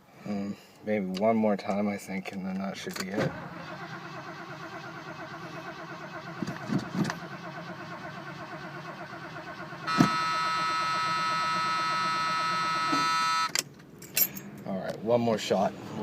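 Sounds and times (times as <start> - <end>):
starter motor cranking engine: 3.1 - 13.5
starter motor whine: 3.3 - 13.6.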